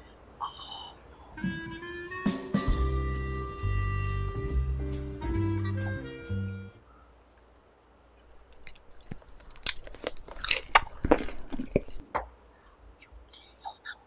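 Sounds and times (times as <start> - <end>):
background music: 1.4 - 6.8
person chewing: 8.2 - 12.0.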